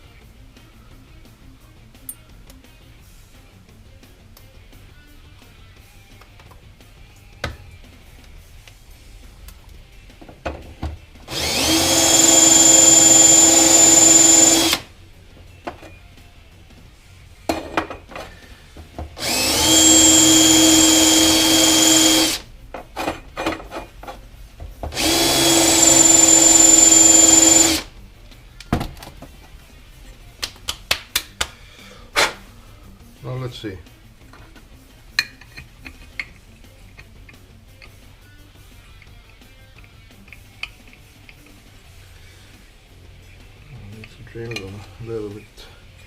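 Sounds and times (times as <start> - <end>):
power drill drilling: 11.3 - 14.9, 19.2 - 22.4, 24.9 - 27.9.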